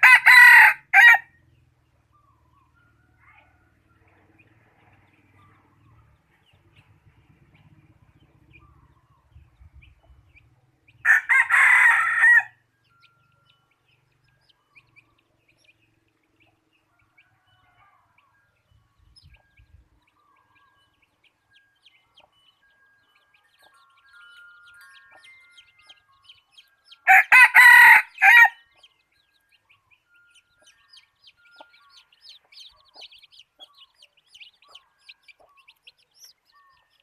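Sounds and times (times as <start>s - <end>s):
rooster crowing: 0.0s - 1.3s, 11.0s - 12.6s, 27.1s - 28.6s
faint bird chirps: 1.6s - 10.6s, 12.8s - 27.1s, 28.7s - 37.0s.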